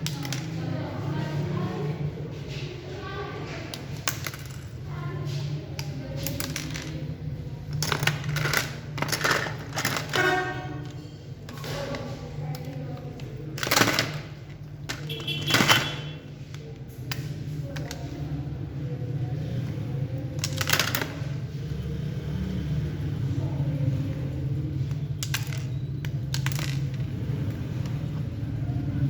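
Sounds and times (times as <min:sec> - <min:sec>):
robot model parts clicking and rattling: 0:05.8 - 0:10.4, 0:11.5 - 0:16.0.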